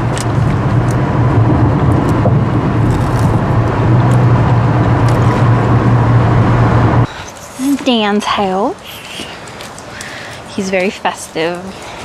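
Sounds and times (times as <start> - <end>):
car engine and road drone: 0.0 - 7.1
rushing noise: 0.0 - 7.3.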